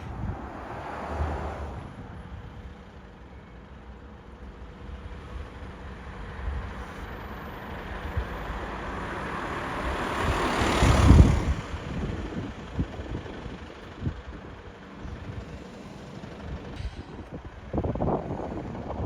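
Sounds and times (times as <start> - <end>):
heavy vehicle driving past: 0.0 - 2.5.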